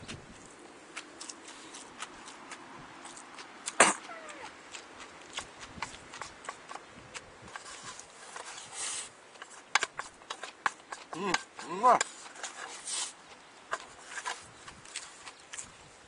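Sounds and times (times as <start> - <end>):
chewing and lip-smacking: 0.0 - 7.6.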